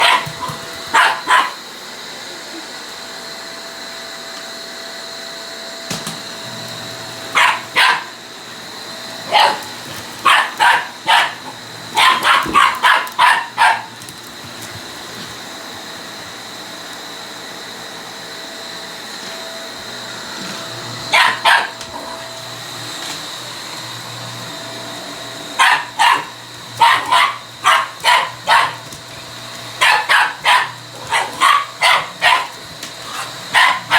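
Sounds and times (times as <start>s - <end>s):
dog barking: 0.0s - 1.6s, 7.3s - 8.2s, 9.2s - 14.0s, 21.1s - 22.0s, 25.6s - 28.9s, 29.8s - 33.9s
vacuum cleaner whine: 0.0s - 33.9s.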